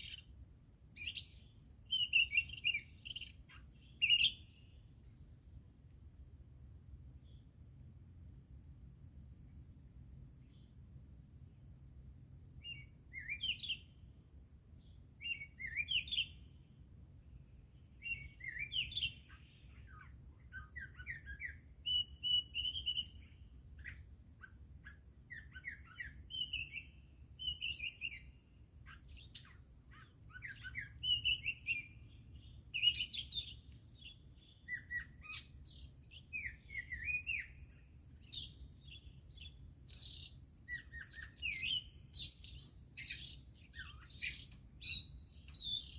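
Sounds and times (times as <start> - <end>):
birds chirping and warbling: 18.0 - 23.2, 23.8 - 45.9.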